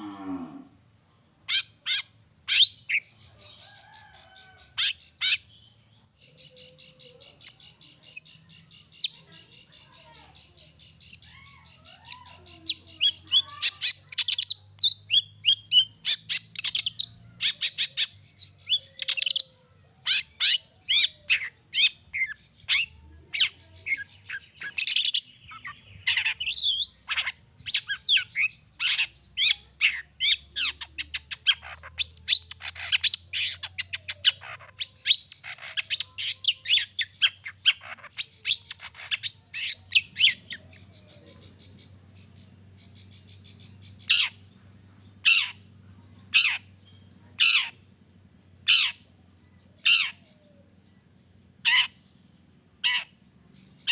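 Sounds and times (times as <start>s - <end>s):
shrike singing chattering song: 1.5s - 53.9s.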